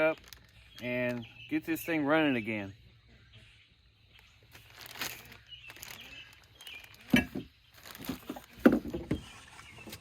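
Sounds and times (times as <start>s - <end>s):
rustling: 0.0s - 0.9s, 4.2s - 10.0s.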